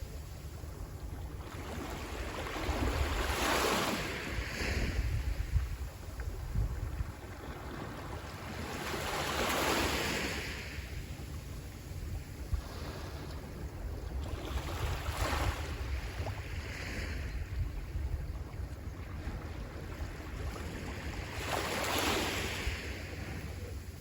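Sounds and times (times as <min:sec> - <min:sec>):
sea waves breaking on shore: 0:00.0 - 0:24.0
wind rumbling on microphone: 0:00.0 - 0:24.0.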